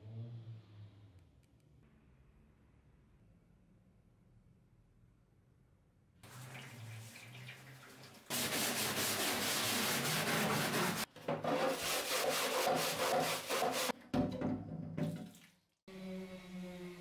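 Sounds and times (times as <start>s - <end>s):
wood being sanded: 8.3s - 13.9s.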